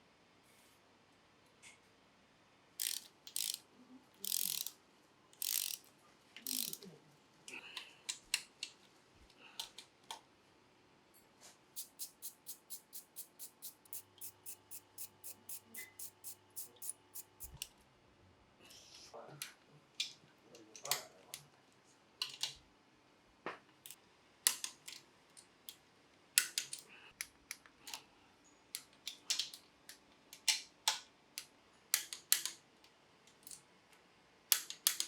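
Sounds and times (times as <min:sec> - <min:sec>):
ratchet wrench clicking: 0:02.8 - 0:03.6, 0:04.2 - 0:04.8, 0:05.4 - 0:06.8, 0:11.8 - 0:17.6.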